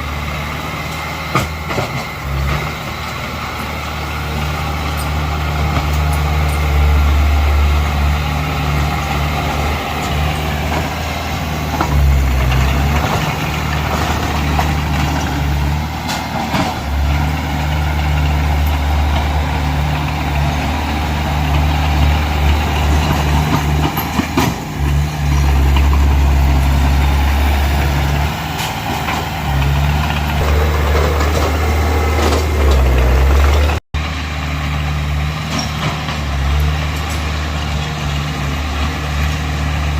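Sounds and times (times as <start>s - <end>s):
diesel engine under load: 0.0s - 39.9s.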